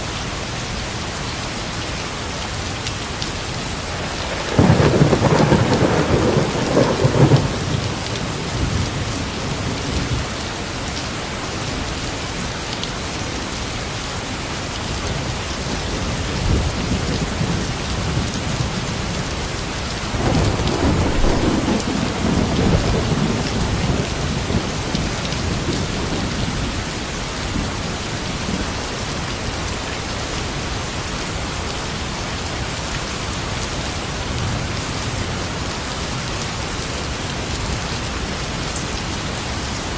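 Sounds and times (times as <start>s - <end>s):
steady rain falling: 0.0s - 39.9s
low rolling thunder: 3.8s - 10.3s, 19.8s - 28.8s.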